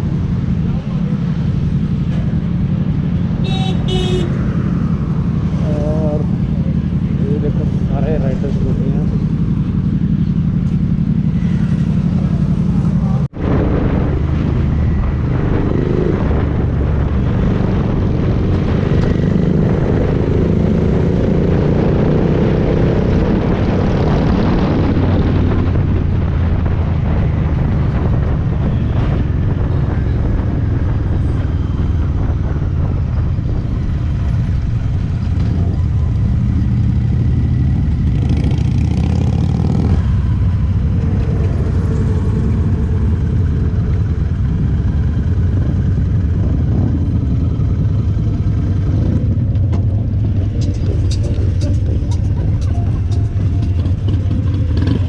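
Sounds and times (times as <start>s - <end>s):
motorcycle engine: 0.0s - 55.0s
wind noise: 13.2s - 55.0s.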